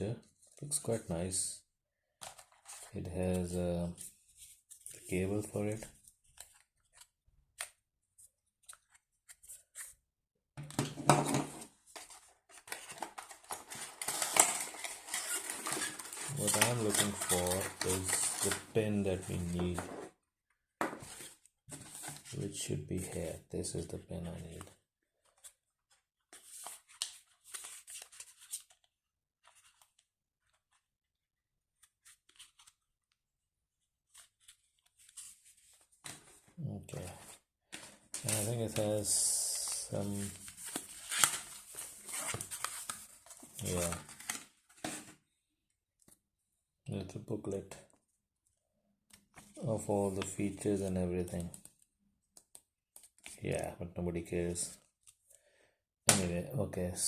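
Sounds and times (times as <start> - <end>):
paper and plastic rustling: 2.2 - 3.0, 10.8 - 20.0, 34.1 - 45.2.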